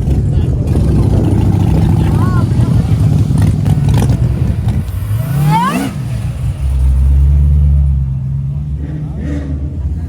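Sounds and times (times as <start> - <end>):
car engine revving and rumbling: 0.0 - 10.0.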